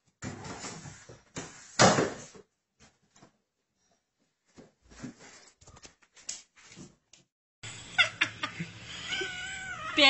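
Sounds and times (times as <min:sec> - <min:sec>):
short high cat cries: 0:08.9 - 0:10.0.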